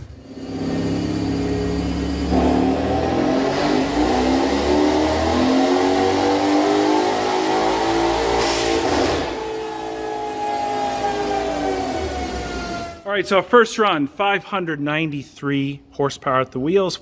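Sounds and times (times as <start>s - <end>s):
engine at full throttle: 0.0s - 13.1s
hiss as throttle shuts: 8.4s - 9.3s.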